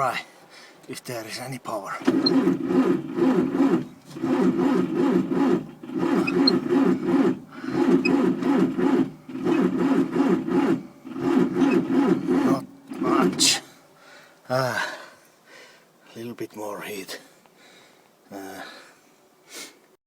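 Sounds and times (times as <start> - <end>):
starter motor slowly cranking engine: 2.0 - 13.6.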